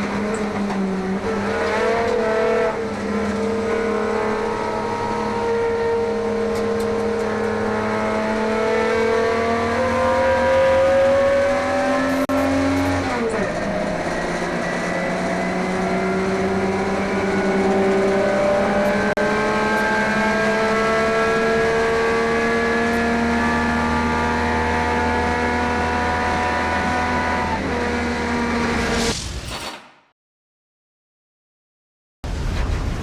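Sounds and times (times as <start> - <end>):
race car engine pulling under load: 0.0 - 28.7.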